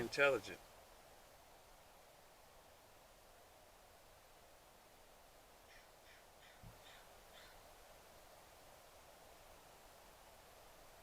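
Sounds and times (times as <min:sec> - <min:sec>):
faint crow cawing: 0:05.6 - 0:07.7.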